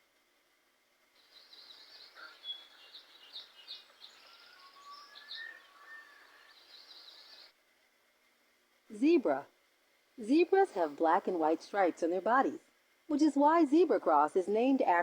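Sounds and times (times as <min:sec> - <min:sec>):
outdoor background noise: 0:00.0 - 0:15.0
birds chirping and whistling: 0:01.3 - 0:07.5.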